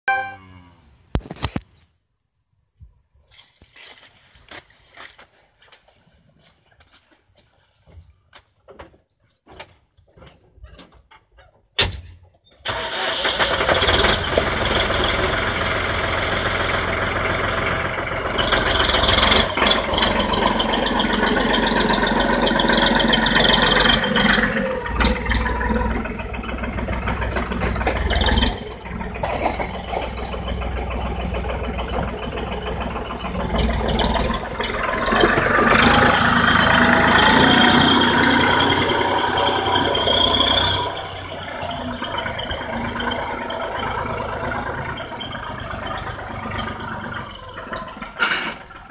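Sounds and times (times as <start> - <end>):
tractor diesel engine: 12.6 - 48.9
manure spreader rattling: 12.7 - 48.9.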